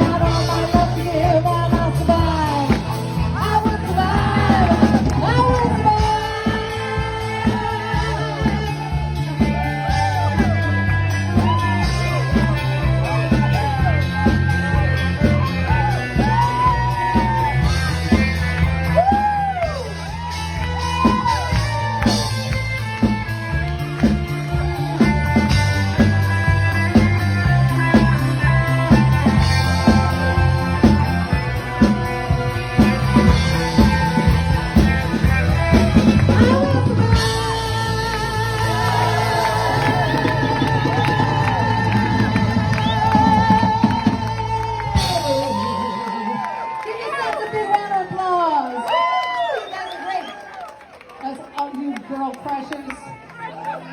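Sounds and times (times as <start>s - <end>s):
person singing: 0.0s - 10.8s, 35.5s - 46.4s
stepping bass line: 0.0s - 46.5s
electric guitar: 0.0s - 46.9s.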